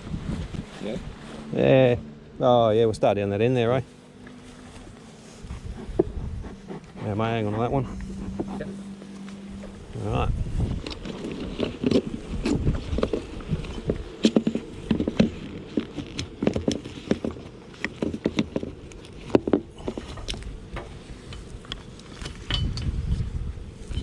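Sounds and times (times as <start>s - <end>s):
low rumble: 0.0s - 15.7s
footsteps: 3.1s - 17.5s
knocks and clicks of hive gear: 10.9s - 22.9s.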